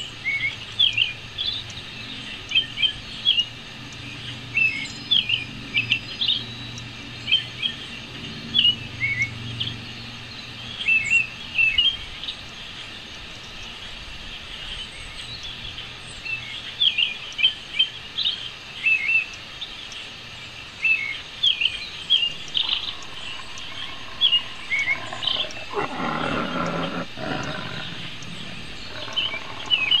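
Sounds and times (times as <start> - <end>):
birds chirping: 14.5 - 30.0
loud low noise: 22.1 - 30.0.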